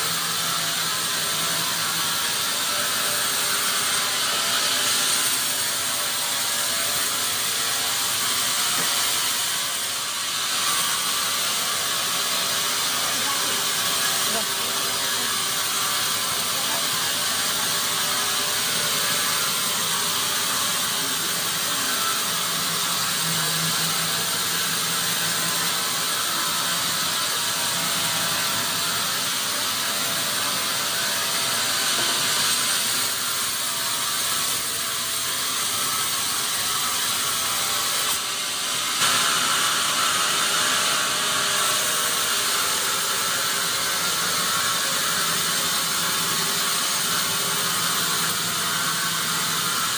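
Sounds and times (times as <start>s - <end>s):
sawmill machinery sawing wood: 0.0s - 49.9s.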